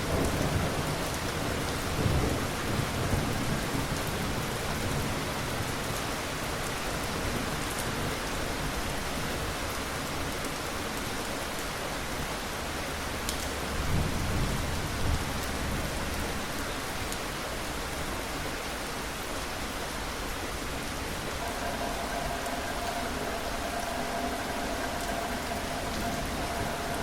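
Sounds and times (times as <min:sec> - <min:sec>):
steady rain: 0:00.0 - 0:27.0
faint steady tone: 0:21.4 - 0:27.0.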